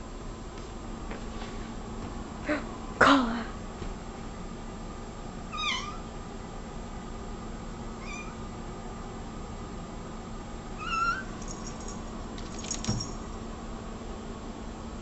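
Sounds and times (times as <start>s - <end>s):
cat meowing: 5.5s - 6.1s, 8.0s - 8.4s, 10.8s - 11.3s.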